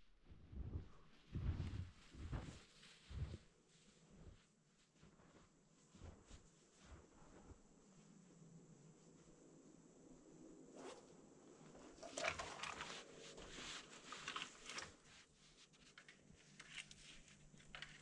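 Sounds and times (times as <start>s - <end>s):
person moving in deep snow: 0.6s - 8.4s.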